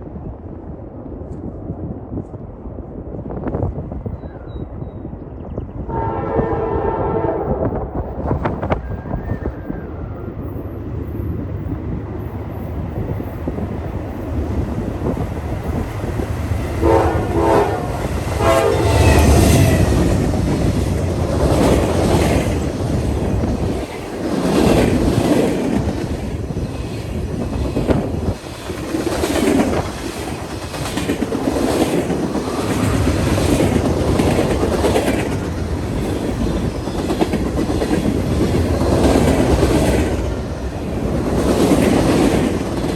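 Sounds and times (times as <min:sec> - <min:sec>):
train horn: 0:05.9 - 0:08.2, 0:16.8 - 0:20.0
train wheels clicking over rail joints: 0:18.0 - 0:42.9.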